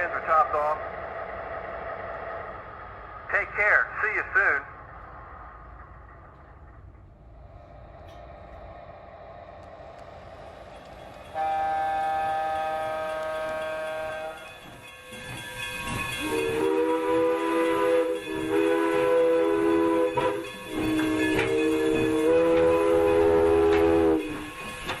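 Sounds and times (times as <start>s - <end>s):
model train engine rumble: 0.0s - 25.0s
train horn blast: 11.3s - 14.5s, 16.2s - 24.3s
three-note horn chord: 11.4s - 14.4s.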